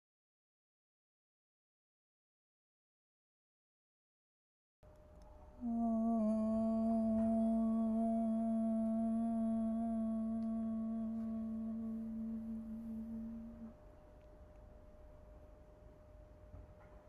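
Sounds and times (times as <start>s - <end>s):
person humming a long note: 5.6s - 13.8s.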